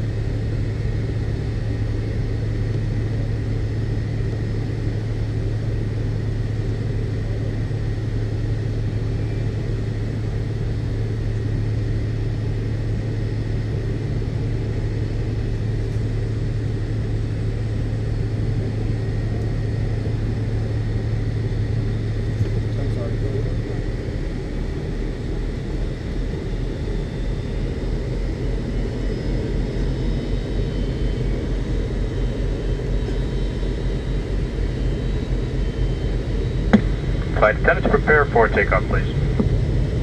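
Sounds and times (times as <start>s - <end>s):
airliner cabin engine rumble: 0.0s - 40.0s
faint high whine: 35.2s - 40.0s.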